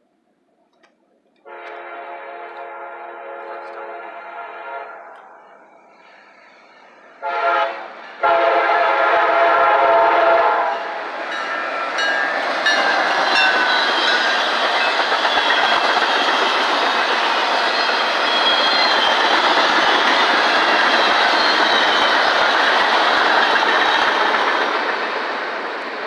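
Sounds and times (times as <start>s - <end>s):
locomotive horn blasts: 1.4s - 5.1s, 7.2s - 10.9s
train passing: 1.4s - 26.0s.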